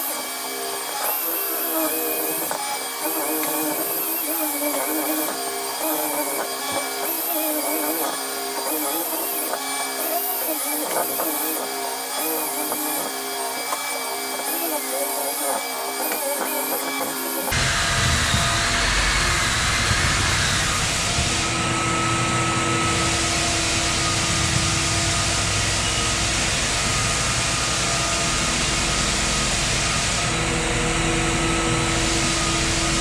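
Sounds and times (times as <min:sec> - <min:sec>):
electric floor sander running: 0:00.0 - 0:33.0.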